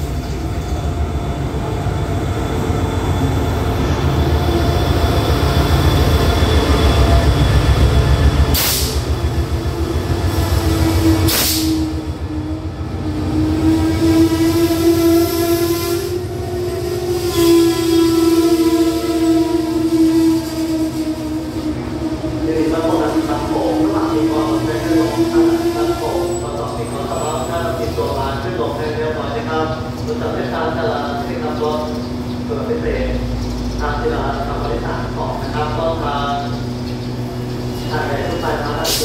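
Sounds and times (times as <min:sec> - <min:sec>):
locomotive running loudly: 0:00.0 - 0:39.0
hiss bursts: 0:08.5 - 0:09.1, 0:10.3 - 0:11.9.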